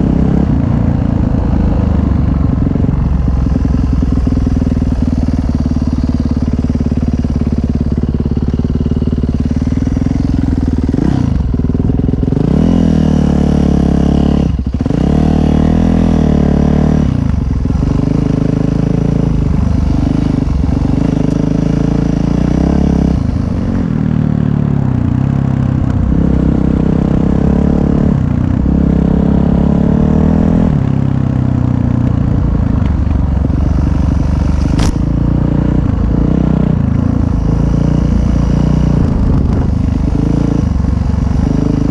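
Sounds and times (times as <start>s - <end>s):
dirt bike engine revving: 3.4s - 30.8s.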